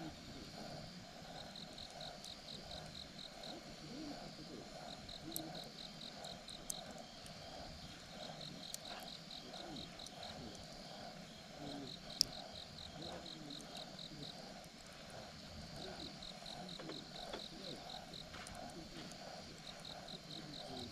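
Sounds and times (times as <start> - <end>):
campfire burning: 0.0 - 20.9
cricket chirping: 0.0 - 20.9
wood popping in fire: 4.2 - 20.9.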